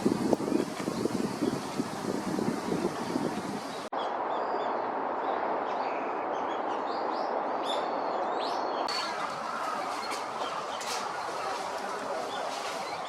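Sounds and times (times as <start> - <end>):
small birds chirping: 0.0 - 4.5, 5.7 - 13.0
steady rushing noise: 8.9 - 13.0.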